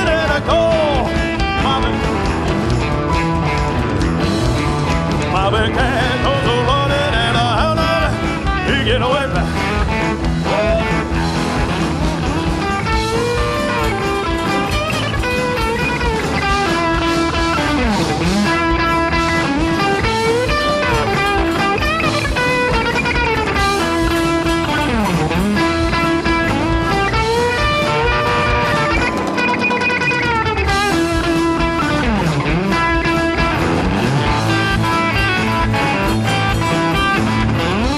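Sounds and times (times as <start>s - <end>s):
rock band playing: 0.0s - 37.9s
electric guitar solo: 9.4s - 37.9s.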